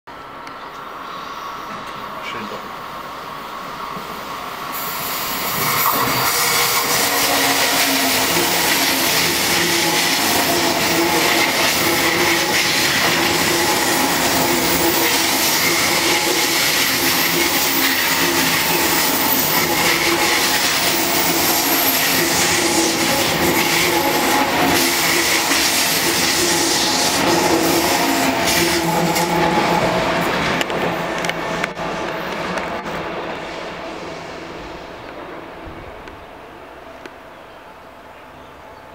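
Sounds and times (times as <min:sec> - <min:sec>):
train humming tones: 0:00.1 - 0:38.9
train wheel running noise: 0:04.7 - 0:33.5.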